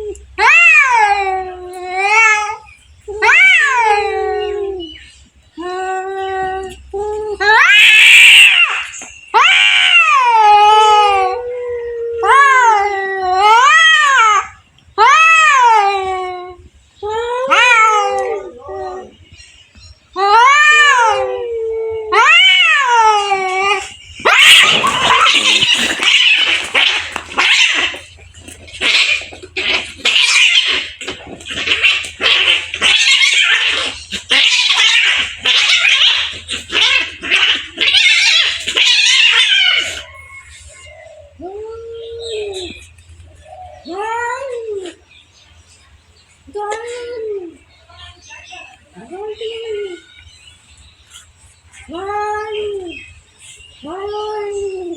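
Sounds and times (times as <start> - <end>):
cats yowling: 0.0 - 5.0, 5.6 - 45.1
cats hissing and spitting: 23.8 - 40.1.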